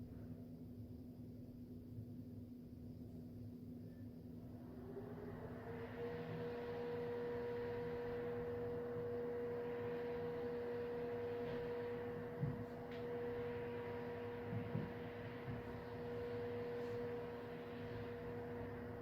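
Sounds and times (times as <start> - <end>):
indoor room hum: 0.0 - 19.0
soft knocks: 14.4 - 15.8.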